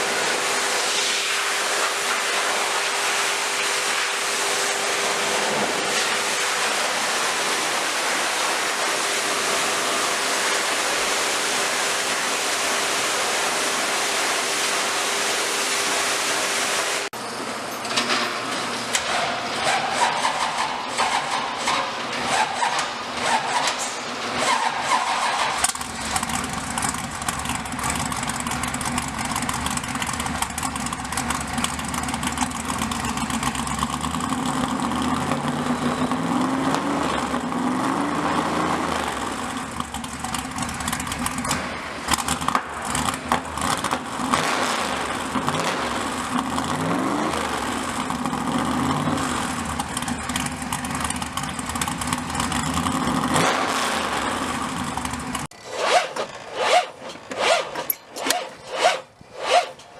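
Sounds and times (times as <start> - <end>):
car engine revving: 25.1 - 59.8.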